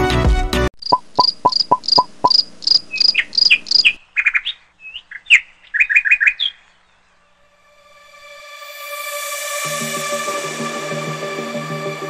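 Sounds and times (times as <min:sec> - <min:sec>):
bird chirping: 0:00.8 - 0:07.5.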